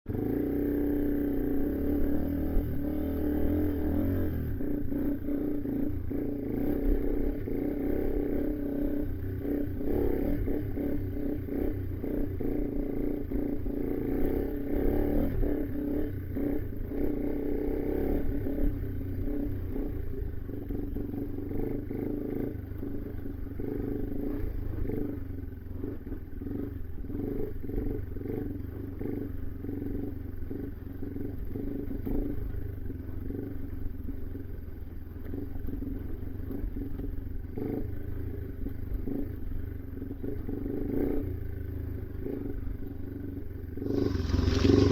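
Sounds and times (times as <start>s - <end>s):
motorcycle engine running: 0.0s - 44.9s
knocks and rattles of bike: 30.5s - 44.9s.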